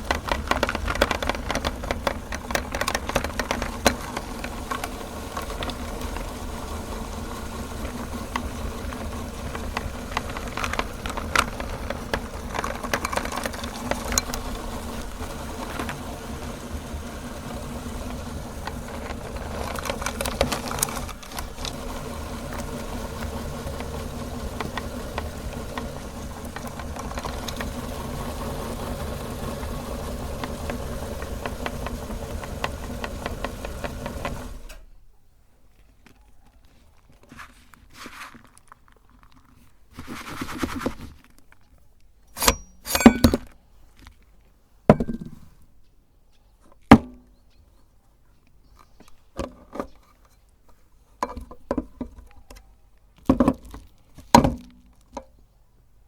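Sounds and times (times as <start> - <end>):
chocolate crackling and clicking: 0.0 - 28.3
meat grinder motor humming: 0.0 - 34.8.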